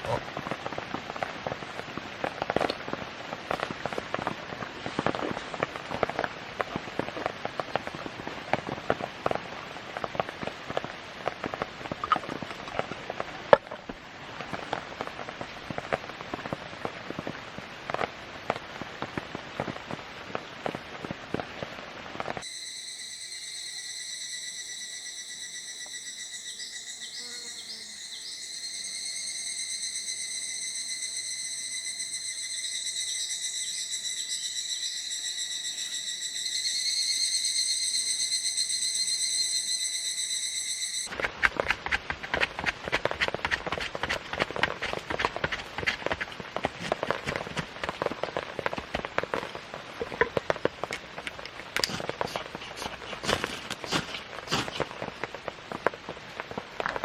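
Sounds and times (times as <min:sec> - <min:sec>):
rain falling: 0:00.0 - 0:22.4, 0:41.1 - 0:57.0
insects singing: 0:22.4 - 0:41.2.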